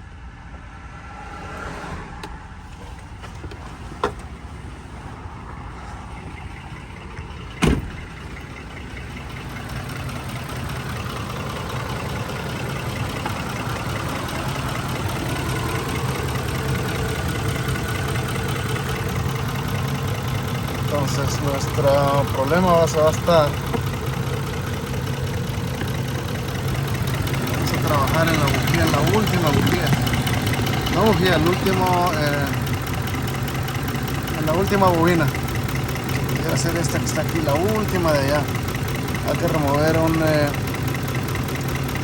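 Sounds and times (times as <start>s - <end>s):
misfiring engine idling: 2.3s - 42.0s.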